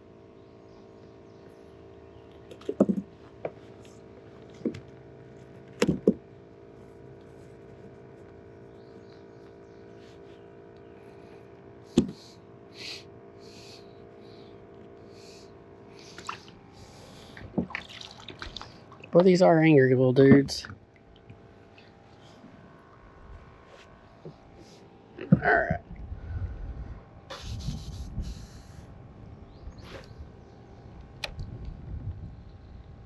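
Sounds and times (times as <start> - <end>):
steady faint hum: 0.0 - 33.0
sharp knocks and clicks: 2.5 - 3.6, 5.8 - 6.2.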